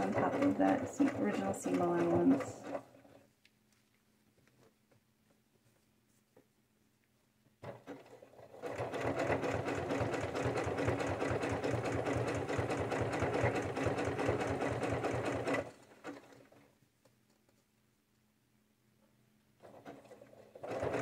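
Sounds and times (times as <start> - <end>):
sewing machine stitching: 0.0 - 3.3, 7.6 - 16.7, 19.6 - 21.0.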